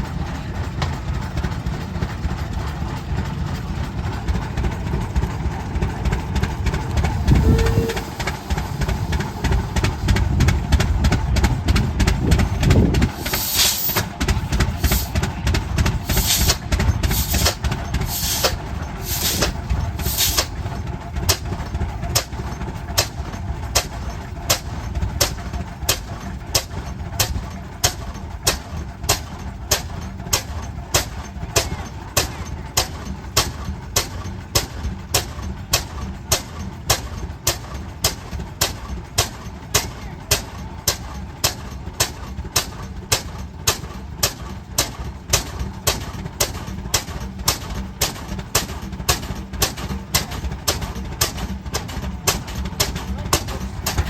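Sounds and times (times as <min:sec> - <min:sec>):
tractor engine running: 0:00.0 - 0:54.0
burst of hiss: 0:13.2 - 0:14.0, 0:16.1 - 0:20.5.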